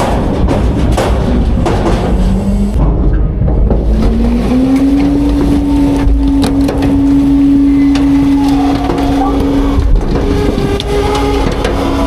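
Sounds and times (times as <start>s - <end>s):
sharp knocks: 0.0s - 7.2s
garbage truck engine revving: 0.0s - 12.0s
hydraulic whine: 2.1s - 12.0s.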